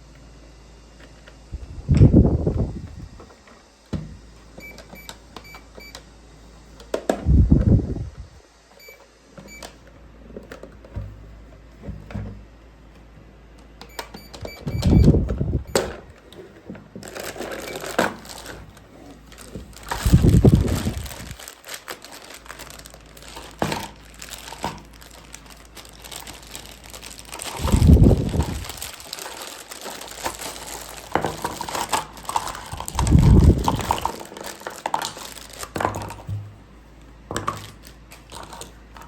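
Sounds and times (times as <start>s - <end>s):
short high electronic beeps: 14.1s - 15.2s
rustling: 15.0s - 39.0s.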